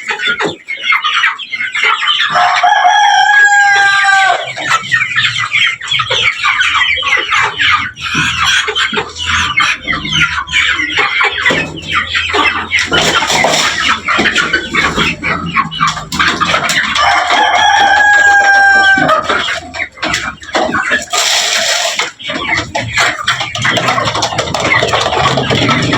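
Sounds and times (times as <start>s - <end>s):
chickens clucking: 0.0s - 25.9s
rooster crowing: 2.3s - 4.6s, 16.9s - 19.3s.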